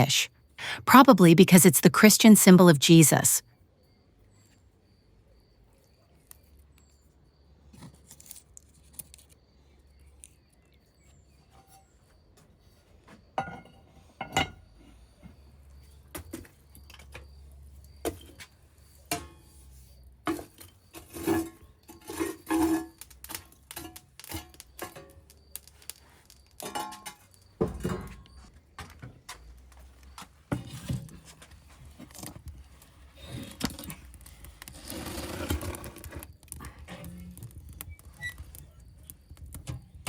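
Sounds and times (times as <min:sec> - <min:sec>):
kitchenware clinking and knocking: 0:26.6 - 0:28.2.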